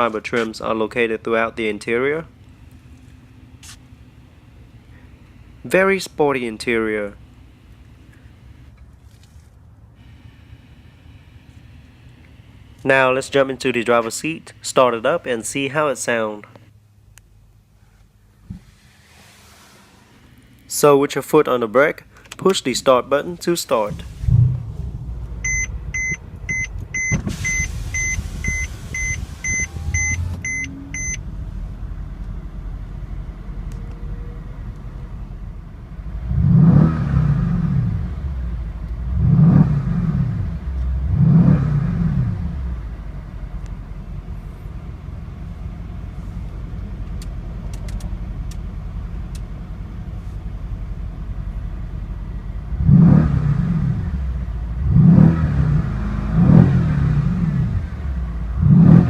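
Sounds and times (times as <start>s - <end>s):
car engine idling and revving: 2.3s - 14.6s, 23.7s - 59.0s
dashboard warning chime beeping: 25.4s - 31.2s.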